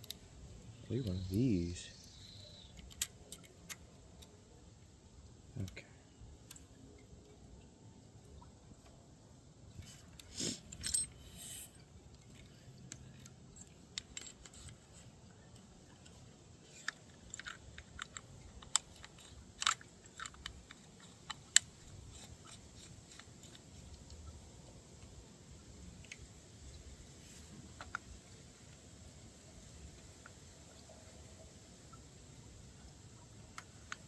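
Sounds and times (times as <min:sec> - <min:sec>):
metal parts and tools clattering: 0:09.8 - 0:11.8.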